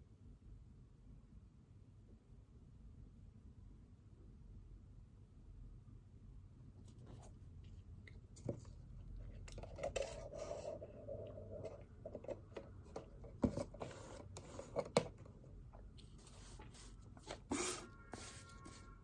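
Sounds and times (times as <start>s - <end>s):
pen scratching on paper: 16.2s - 19.0s.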